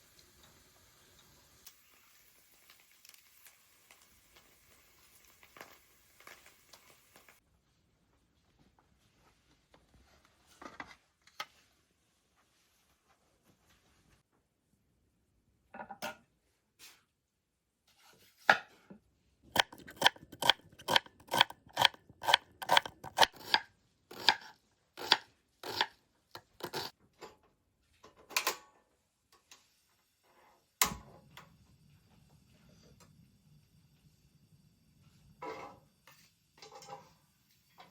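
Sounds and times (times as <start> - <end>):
knife chopping on cutting board: 19.6 - 26.9.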